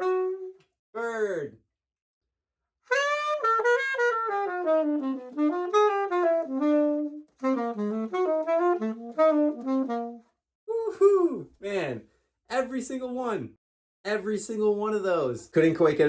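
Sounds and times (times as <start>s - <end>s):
saxophone playing fast bebop: 0.0s - 0.6s, 2.9s - 10.3s.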